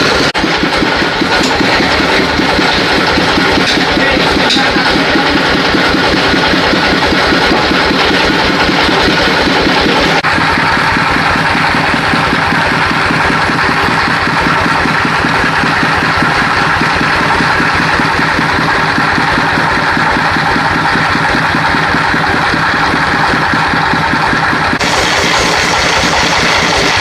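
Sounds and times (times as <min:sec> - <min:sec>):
engine running steadily: 0:00.0 - 0:27.0.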